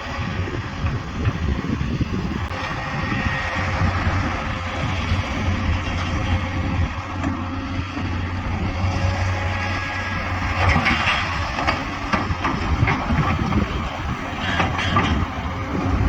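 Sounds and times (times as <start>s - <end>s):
diesel engine running: 0.0s - 16.0s
metallic clanks and rattles: 10.6s - 15.6s.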